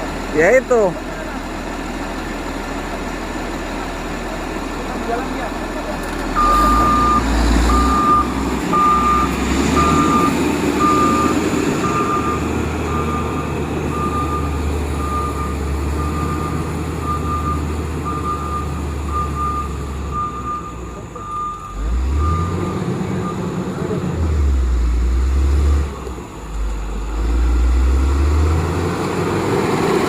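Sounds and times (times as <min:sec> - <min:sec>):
diesel engine humming: 0:00.0 - 0:30.0
reversing alarm beeping: 0:06.4 - 0:23.7.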